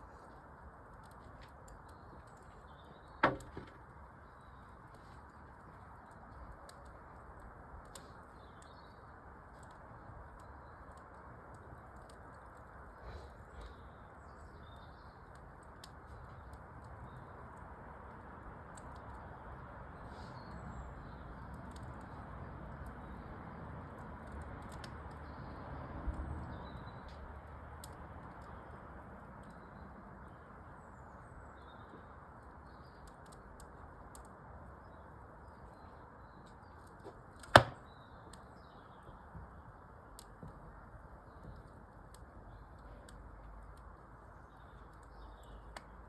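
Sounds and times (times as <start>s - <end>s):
fireplace fire crackling: 0.0s - 46.0s
dull thump: 37.5s - 37.8s
loud sharp pop: 37.5s - 37.8s.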